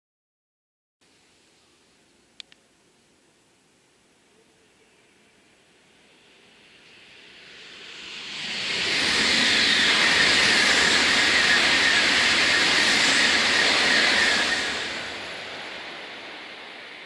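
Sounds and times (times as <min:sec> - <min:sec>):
high-speed train passing: 0:04.8 - 0:17.0.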